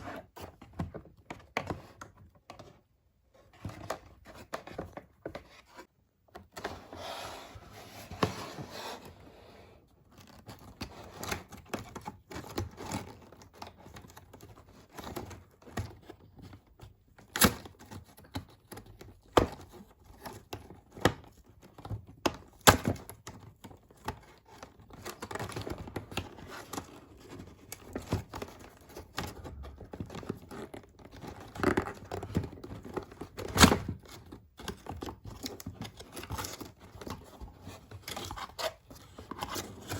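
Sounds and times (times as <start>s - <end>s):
cardboard and plastic tearing: 17.2s - 39.9s.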